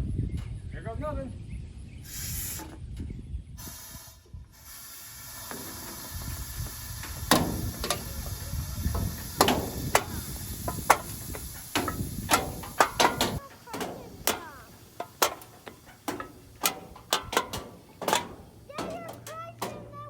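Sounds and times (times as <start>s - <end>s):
air hissing from suspension: 1.9s - 20.0s
cans crackling and cracking: 9.0s - 20.0s.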